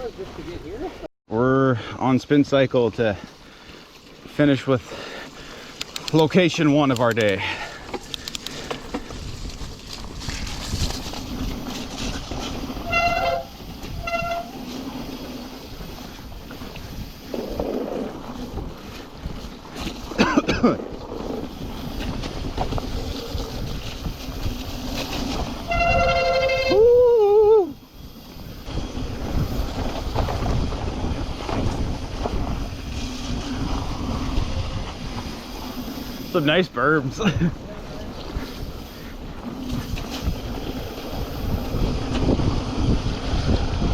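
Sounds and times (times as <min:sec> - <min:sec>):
tyres rolling on a trail: 0:00.0 - 0:43.9
wind rushing over microphone: 0:07.6 - 0:19.8, 0:20.9 - 0:43.9
bike brakes squealing: 0:12.1 - 0:15.1, 0:25.4 - 0:28.6.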